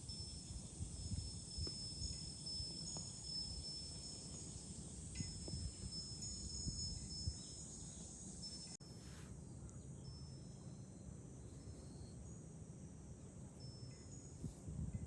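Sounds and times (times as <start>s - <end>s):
wind rumbling on microphone: 0.0s - 8.7s, 13.5s - 15.0s
wind chime ringing: 0.0s - 8.8s
cicadas droning: 0.0s - 15.0s.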